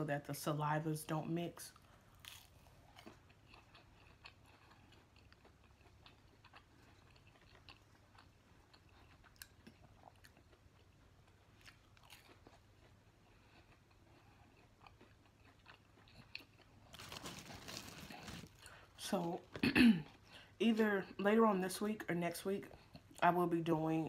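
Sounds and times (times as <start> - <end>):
close-miked chewing: 1.7 - 20.3
small crunches and clicks: 14.9 - 18.8.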